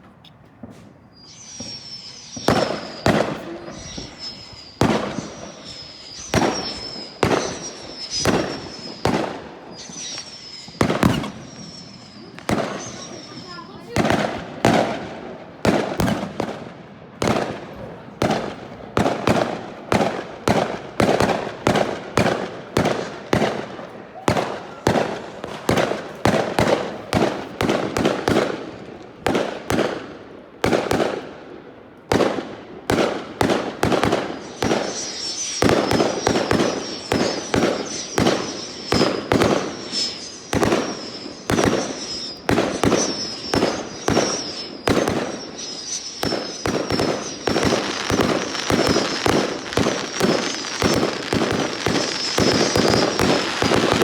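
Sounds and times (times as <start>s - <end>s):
fireworks bangs with crackle: 0.0s - 54.0s
high wavering whistle: 1.0s - 14.3s, 32.9s - 54.0s.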